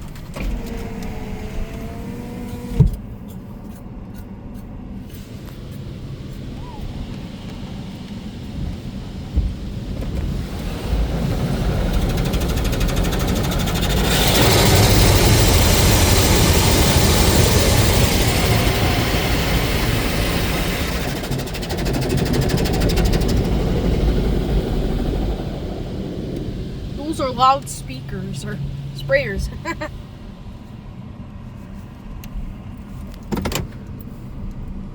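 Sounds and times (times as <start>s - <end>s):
car wash machine rumble: 4.9s - 31.9s.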